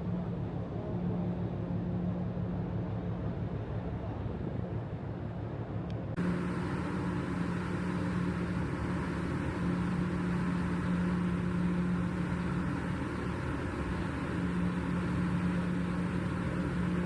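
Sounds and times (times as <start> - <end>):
ship engines droning: 6.2 - 17.0.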